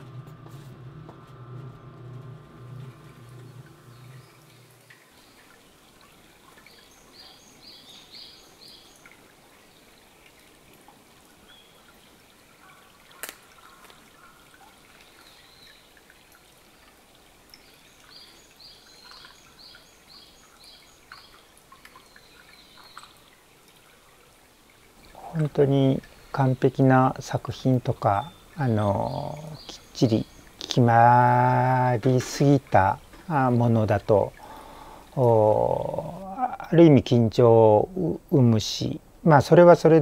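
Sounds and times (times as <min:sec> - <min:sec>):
water trickling: 0:00.0 - 0:40.0
bird singing high note: 0:28.0 - 0:30.5.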